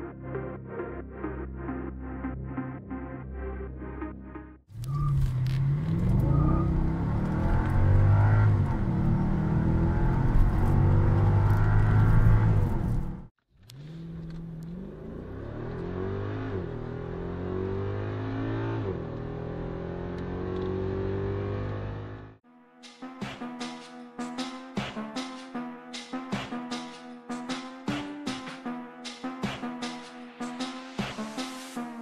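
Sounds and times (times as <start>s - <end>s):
car engine accelerating through gears: 4.8s - 22.4s
car engine at full throttle: 4.8s - 22.4s.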